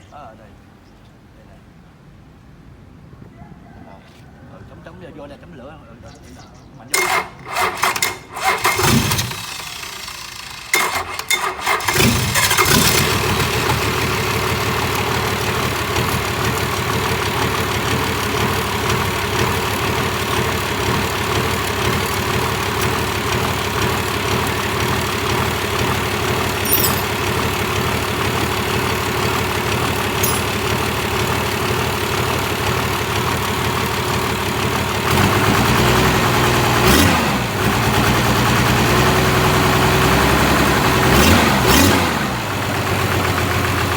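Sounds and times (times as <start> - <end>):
engine starter cranking: 6.9 - 33.6
diesel engine idling: 7.0 - 43.9
engine revving: 7.0 - 43.9.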